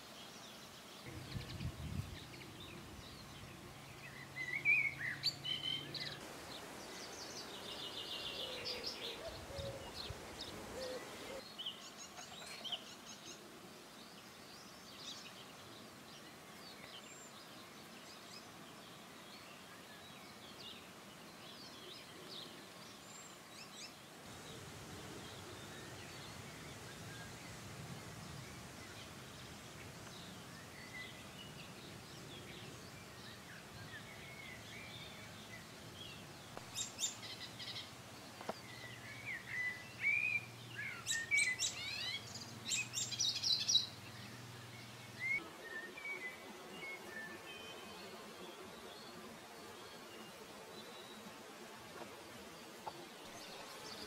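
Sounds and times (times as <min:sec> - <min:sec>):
songbirds chirping and singing: 0:00.1 - 0:54.0.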